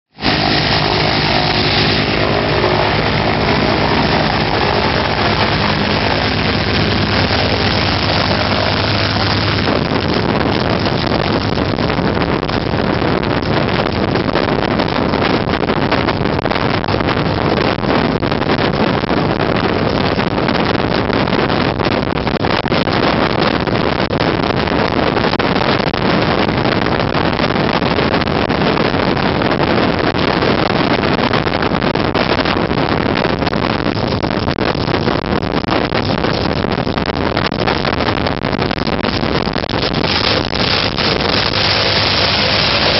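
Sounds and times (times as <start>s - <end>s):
aircraft engine drone: 0.1s - 11.9s, 40.0s - 42.9s
wind buffeting microphone: 0.1s - 42.9s.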